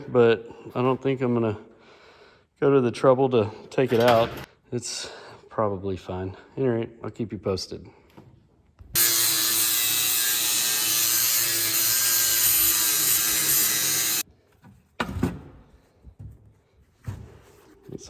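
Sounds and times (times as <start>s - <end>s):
angle grinder grinding metal: 9.0s - 14.2s.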